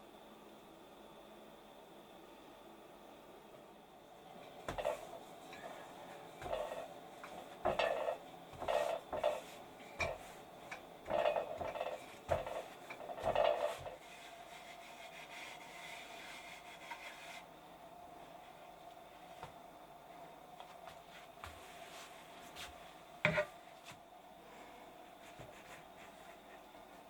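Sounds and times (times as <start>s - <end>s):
scraping and rubbing strokes: 4.7s - 17.6s
light knocks of wood and dishes: 23.3s - 23.6s.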